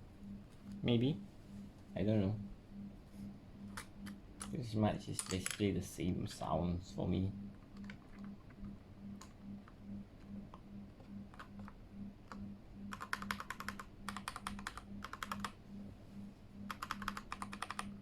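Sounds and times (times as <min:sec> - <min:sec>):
mechanical keyboard typing: 0:03.7 - 0:05.7, 0:07.6 - 0:09.8, 0:11.3 - 0:15.6, 0:16.7 - 0:18.0.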